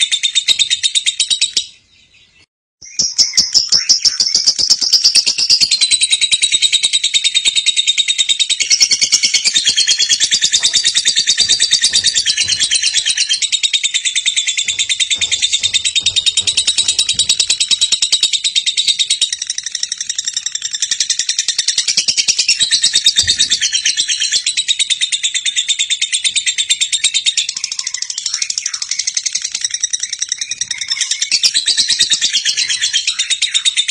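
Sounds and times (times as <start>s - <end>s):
lovebird rapid chatter: 4.0s - 21.5s.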